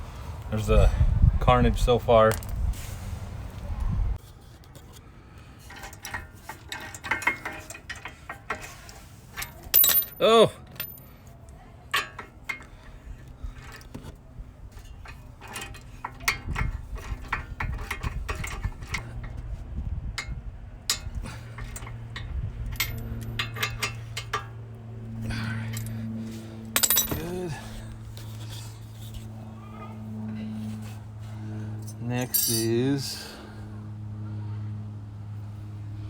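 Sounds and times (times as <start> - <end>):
metal parts clinking and clanking: 5.6 - 11.1, 11.9 - 19.4, 20.2 - 29.3, 31.7 - 33.2
steady low hum: 10.8 - 36.0.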